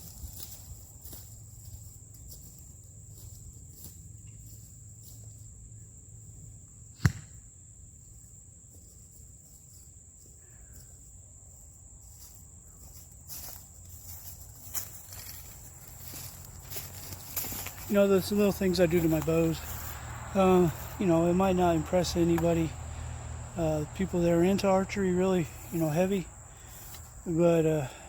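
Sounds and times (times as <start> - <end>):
bow string snapping: 7.0 - 7.4
high-pitched insect buzz: 7.9 - 18.0.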